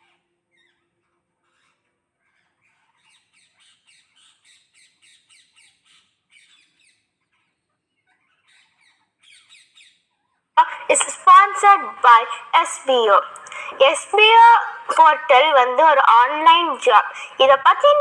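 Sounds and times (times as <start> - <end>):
parrots squawking: 1.4 - 9.9.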